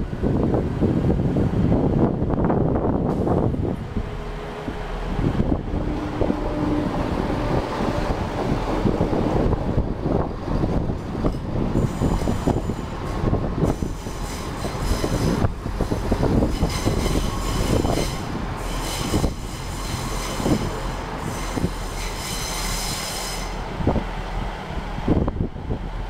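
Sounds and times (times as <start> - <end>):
diesel train passing: 0.0 - 26.0
high-pitched metallic squeal: 11.8 - 13.0, 13.6 - 15.5, 16.3 - 23.6.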